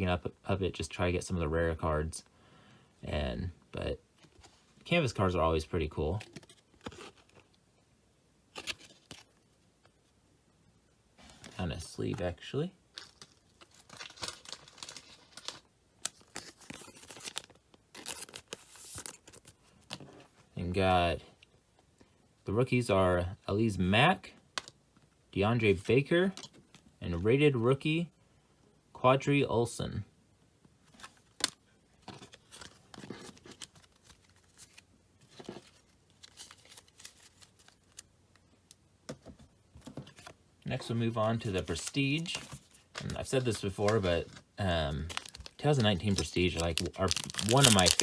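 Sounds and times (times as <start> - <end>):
card sleeve crinkling: 6.1 - 7.5, 8.5 - 9.4, 11.2 - 20.1, 30.9 - 38.8, 39.8 - 48.0.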